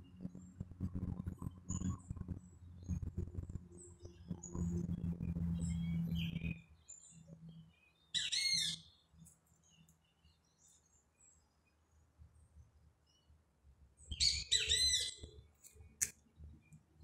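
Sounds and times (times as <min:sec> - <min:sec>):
small bird chirping: 0:01.6 - 0:13.4, 0:14.0 - 0:16.0.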